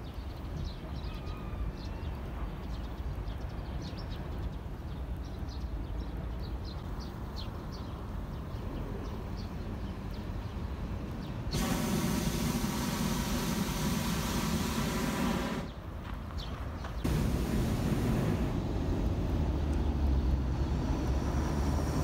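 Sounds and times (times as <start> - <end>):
small birds chirping: 0.0 - 18.6
steady low rumble: 17.0 - 20.0.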